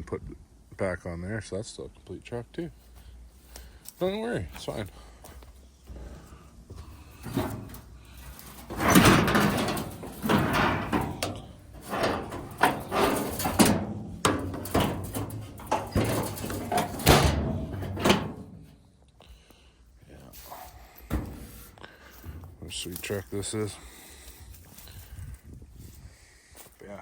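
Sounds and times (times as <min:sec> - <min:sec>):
clunks and scrapes on steel body: 0:05.4 - 0:18.8, 0:20.4 - 0:22.6.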